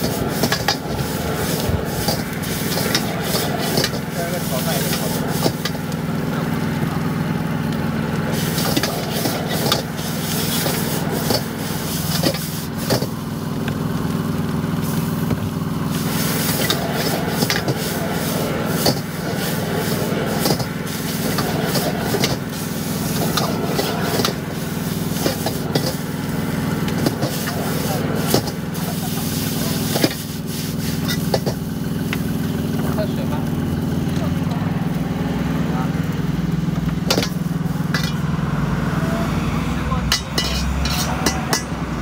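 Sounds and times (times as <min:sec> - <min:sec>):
metal spatula scraping a wok: 0:00.0 - 0:05.8, 0:08.4 - 0:13.1, 0:15.9 - 0:26.1, 0:27.0 - 0:31.7, 0:37.1 - 0:38.2, 0:40.1 - 0:42.0
burner humming: 0:00.0 - 0:42.0.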